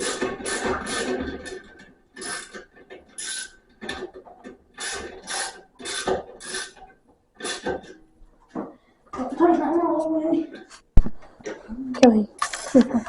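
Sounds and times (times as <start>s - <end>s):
ratchet wrench clicking: 2.2s - 2.6s, 3.2s - 3.6s, 4.8s - 6.8s.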